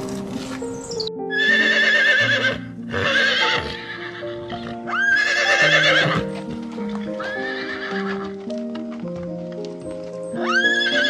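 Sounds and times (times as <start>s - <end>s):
background music: 0.0s - 11.0s
horse neighing: 1.3s - 6.4s, 7.2s - 8.3s, 10.4s - 11.0s.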